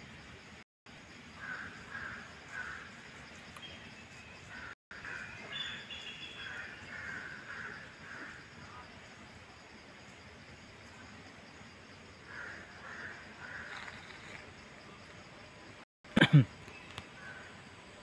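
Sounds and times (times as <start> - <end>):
outdoor background noise: 0.0 - 18.0
birds harsh calls: 4.1 - 8.7.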